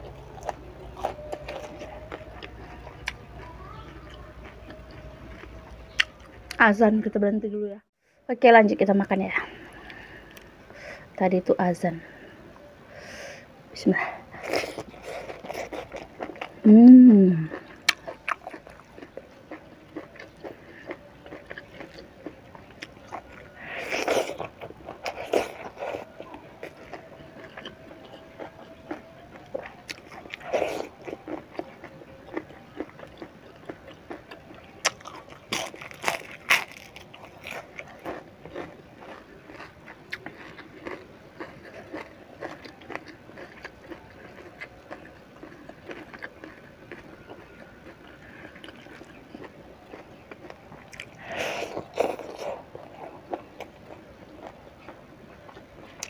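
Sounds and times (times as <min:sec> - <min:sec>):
crunching fried fish: 0:14.3 - 0:16.6, 0:17.5 - 0:56.0.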